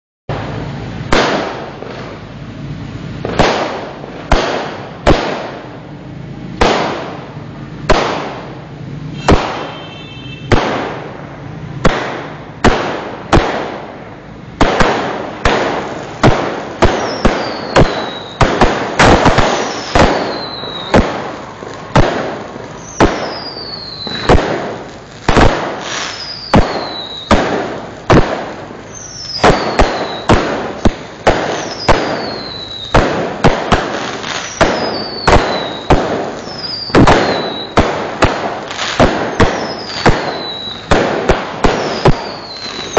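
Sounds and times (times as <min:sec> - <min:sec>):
fireworks bangs: 0:00.3 - 0:42.9
falling whistles: 0:17.0 - 0:18.4, 0:19.6 - 0:21.0, 0:22.8 - 0:24.3, 0:26.0 - 0:27.3, 0:28.9 - 0:30.3, 0:31.5 - 0:33.0, 0:34.4 - 0:37.8, 0:39.3 - 0:40.9, 0:41.8 - 0:42.9.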